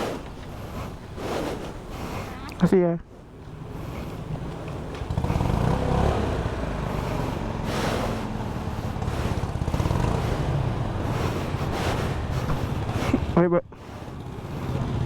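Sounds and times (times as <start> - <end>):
motorcycle engine through open pipe: 3.2 - 15.0.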